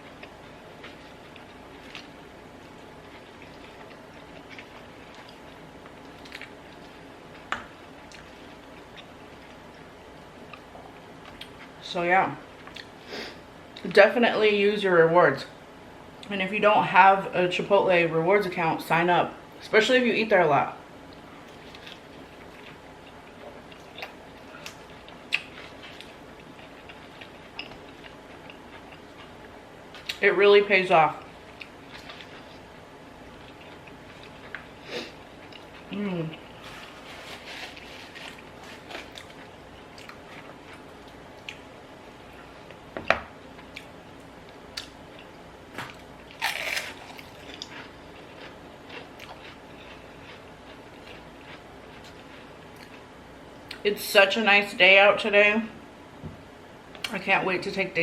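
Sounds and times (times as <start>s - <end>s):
chewing and mouth noises: 21.1s - 30.2s, 33.4s - 41.7s, 46.3s - 53.8s
crunchy bites and chewing: 45.8s - 53.1s.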